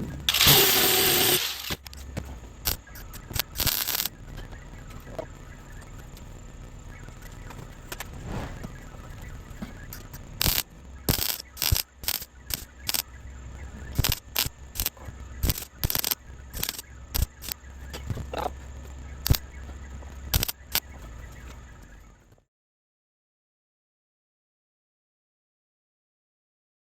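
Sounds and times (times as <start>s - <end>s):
welder crackling bursts: 0.0s - 21.0s
steady low hum: 0.0s - 22.5s.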